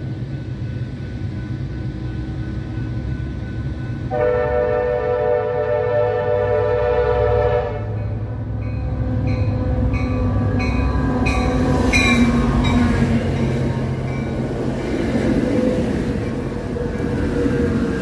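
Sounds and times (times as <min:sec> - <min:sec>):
locomotive bell dinging: 0:00.0 - 0:04.8, 0:07.9 - 0:14.6
diesel locomotive rumble: 0:00.0 - 0:18.0
train horn blast: 0:04.1 - 0:08.2
wheel and rail noise: 0:06.8 - 0:18.0.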